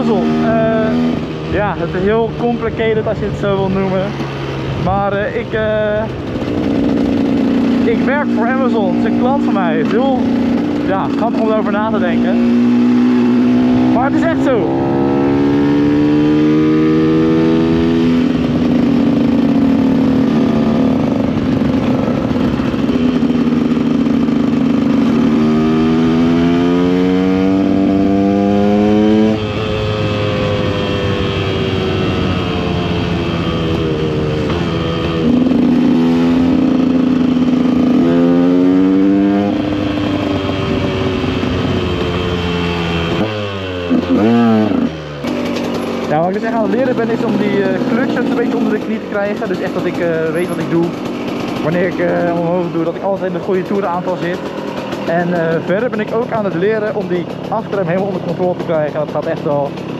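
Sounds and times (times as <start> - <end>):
two-stroke engine revving: 0.0 - 59.9.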